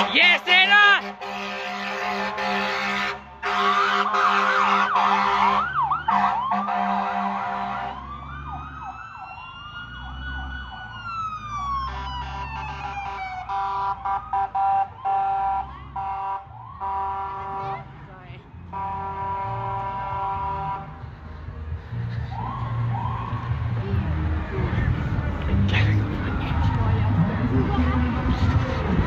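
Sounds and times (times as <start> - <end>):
horn blasts: 0.0 - 8.0, 12.0 - 17.9, 18.6 - 21.0
emergency sirens: 0.0 - 25.4.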